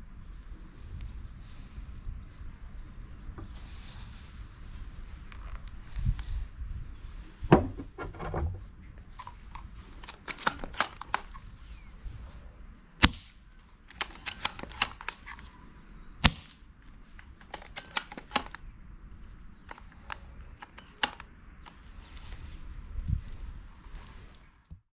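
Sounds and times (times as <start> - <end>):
rifle bolt clicking: 9.2 - 11.4, 13.0 - 15.5, 17.2 - 18.6, 19.6 - 21.8
airsoft rifle shots: 13.0 - 15.2, 16.2 - 16.6.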